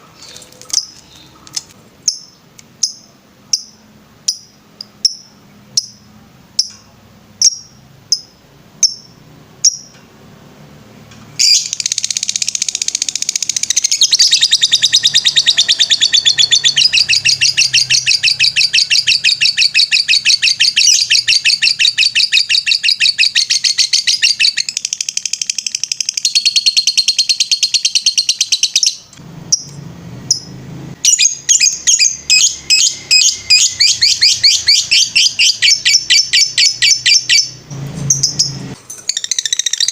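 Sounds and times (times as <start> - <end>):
bird fast trill song: 11.4 - 29.7, 30.3 - 39.9
bird sharp chirps: 11.4 - 39.9.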